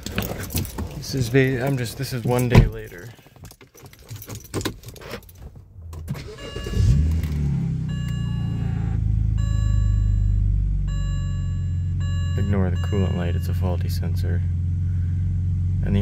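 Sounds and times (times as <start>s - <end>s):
light clicks and rattles: 0.0s - 6.1s
car engine starting and idling: 5.4s - 16.0s
repeating electronic tone: 7.8s - 13.6s.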